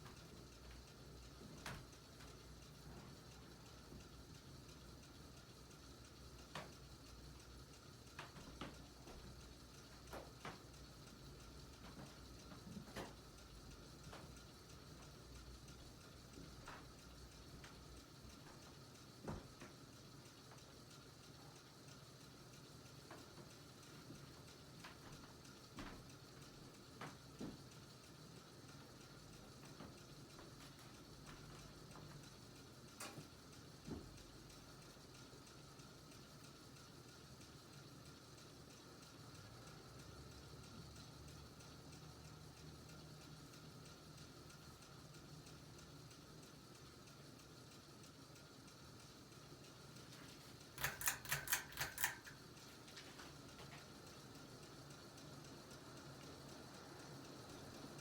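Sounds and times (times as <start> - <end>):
ceiling fan humming: 0.0 - 58.0
sharp ticks: 31.8 - 50.0, 50.6 - 52.7
motor ticking and scraping: 43.6 - 55.6.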